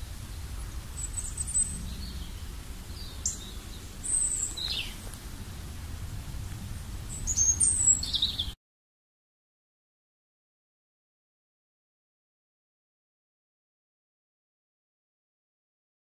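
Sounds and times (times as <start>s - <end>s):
birds chirping: 0.0s - 8.6s
low outdoor rumble: 0.0s - 8.6s.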